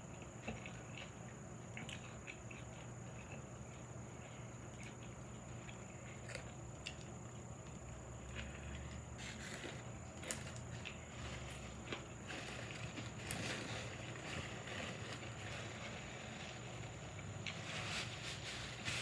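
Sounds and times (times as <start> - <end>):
low steady hum: 0.0 - 19.0
person chewing: 0.1 - 7.1.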